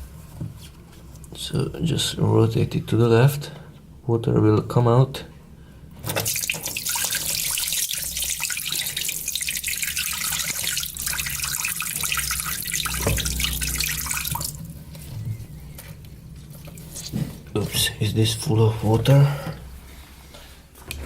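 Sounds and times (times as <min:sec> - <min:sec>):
water gushing from washing machine: 0:06.1 - 0:15.6, 0:16.4 - 0:17.6.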